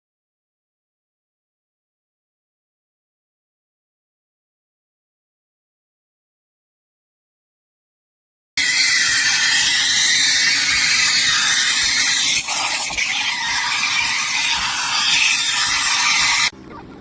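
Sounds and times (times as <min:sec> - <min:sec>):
steam wand hissing: 0:08.6 - 0:16.5.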